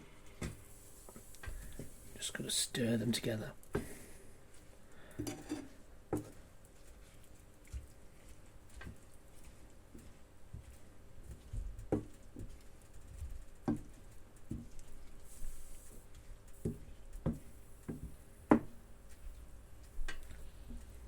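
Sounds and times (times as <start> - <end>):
utensil knocking against a pan: 17.3 - 18.8.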